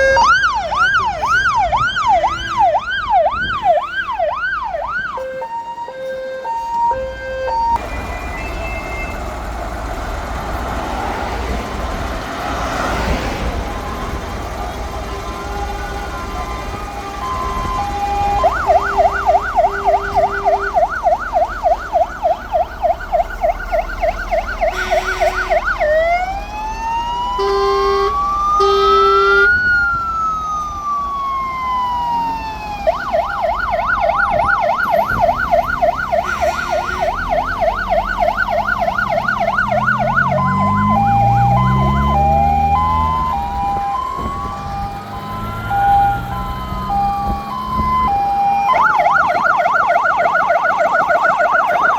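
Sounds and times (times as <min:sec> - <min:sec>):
fire engine sirens: 0:00.0 - 0:51.9
engine revving: 0:07.8 - 0:26.3, 0:33.0 - 0:50.2
short horn blasts: 0:24.7 - 0:25.7, 0:27.4 - 0:29.6, 0:36.2 - 0:37.4.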